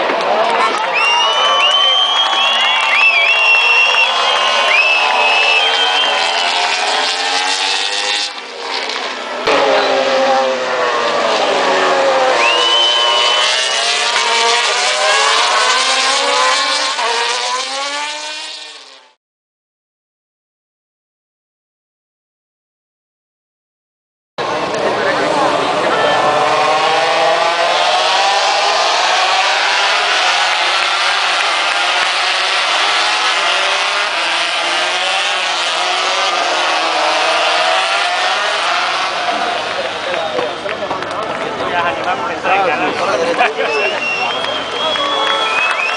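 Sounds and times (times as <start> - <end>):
racing motorcycles at high revs: 3.4 - 19.2, 24.5 - 45.9.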